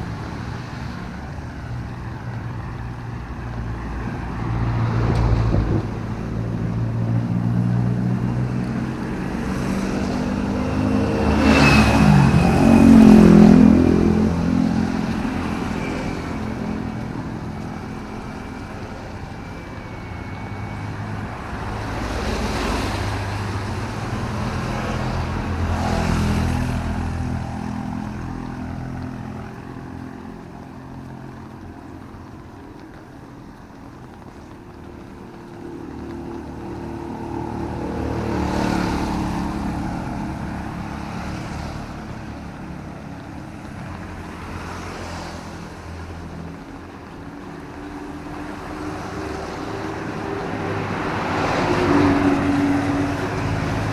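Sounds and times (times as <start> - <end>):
vehicles passing on wet road: 0.0 - 53.9.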